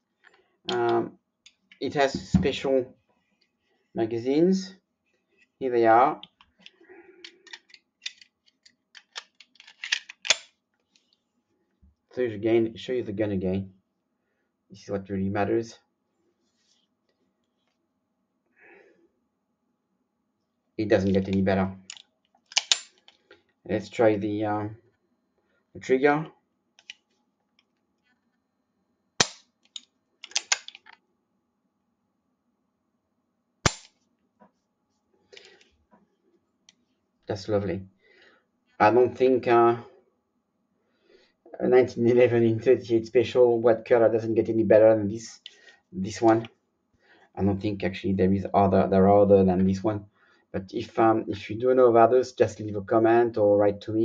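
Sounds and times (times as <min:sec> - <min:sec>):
metal magazines clicking: 0:06.2 - 0:10.6, 0:21.2 - 0:23.3, 0:26.8 - 0:27.1, 0:29.2 - 0:31.0, 0:33.7 - 0:34.0
pistol hammer snapping: 0:22.5 - 0:22.9, 0:29.2 - 0:29.5, 0:30.2 - 0:30.8, 0:33.7 - 0:33.9
pistol recocking clicks: 0:22.5 - 0:22.9, 0:30.2 - 0:30.8.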